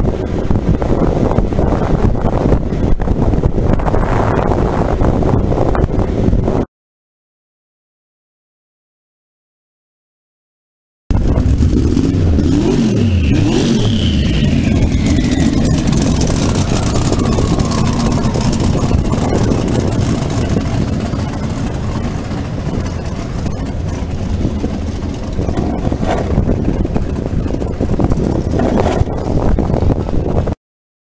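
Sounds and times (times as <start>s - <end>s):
falling whine: 11.1s - 28.6s
dragster engine running: 11.1s - 30.4s
heavy air rush: 11.1s - 30.4s.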